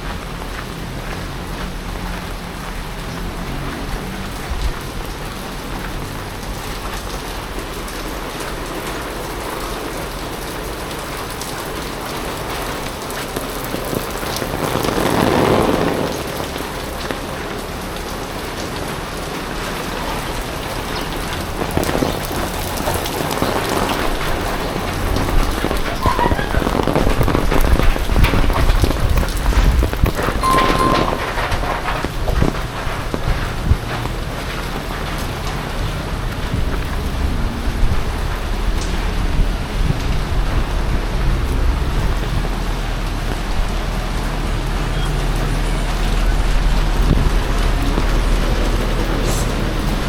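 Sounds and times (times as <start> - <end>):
heavy rain pattering: 0.0 - 50.0.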